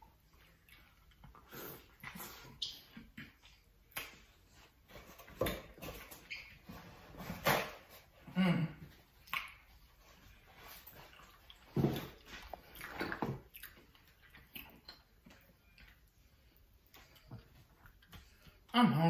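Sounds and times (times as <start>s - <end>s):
chewing and lip smacking: 0.1s - 4.6s, 9.2s - 18.7s
person murmuring: 8.3s - 8.8s.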